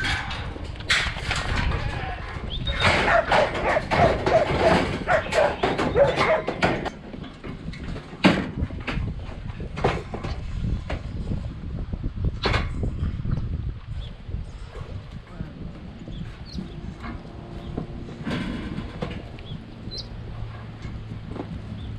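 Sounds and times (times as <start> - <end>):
knocks and clatter: 0.0 - 11.6, 12.3 - 13.5, 15.8 - 21.9
dog barking: 3.0 - 6.7.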